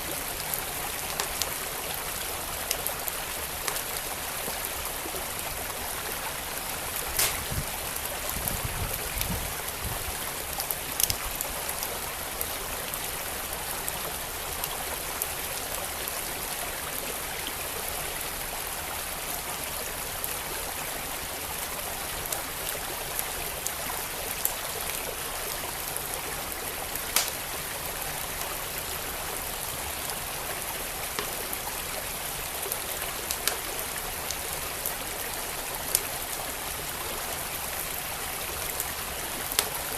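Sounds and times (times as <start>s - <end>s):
wood fire crackling: 7.0s - 8.0s, 11.0s - 11.4s, 27.0s - 27.5s.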